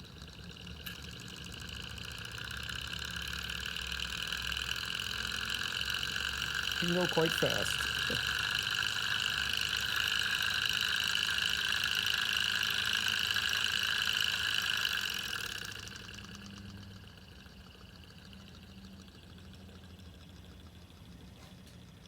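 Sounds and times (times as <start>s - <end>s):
small engine high whirring hiss: 0.0s - 21.8s.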